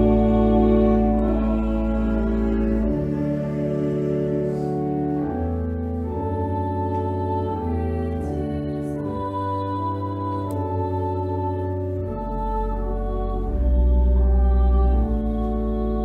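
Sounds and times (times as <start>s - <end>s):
organ playing slow chords: 0.0s - 16.0s.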